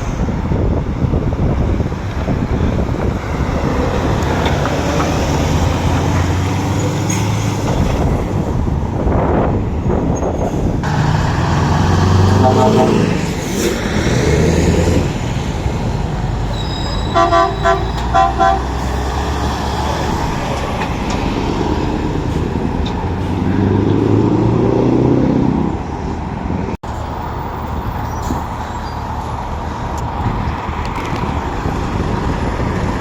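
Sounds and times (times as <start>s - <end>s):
lorry engines and traffic: 0.0s - 33.0s
short horn toots: 12.3s - 13.1s, 16.5s - 18.8s.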